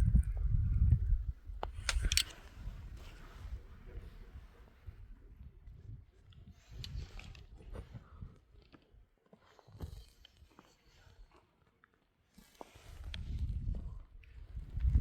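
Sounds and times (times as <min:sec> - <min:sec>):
faint crunches and clicks: 0:01.6 - 0:03.3.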